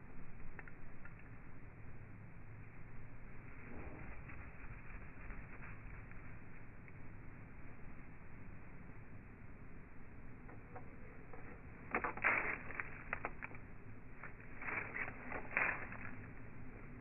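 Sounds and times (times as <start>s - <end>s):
birds clicking and rustling: 10.5s - 16.4s.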